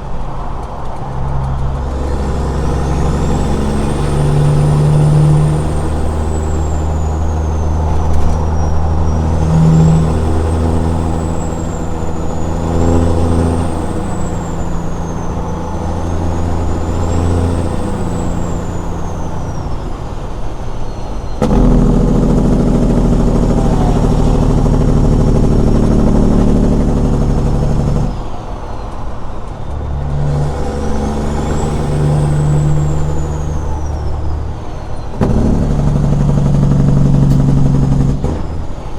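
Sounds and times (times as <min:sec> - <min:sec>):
diesel truck engine: 0:00.0 - 0:38.9
faint high whistle: 0:02.4 - 0:21.4.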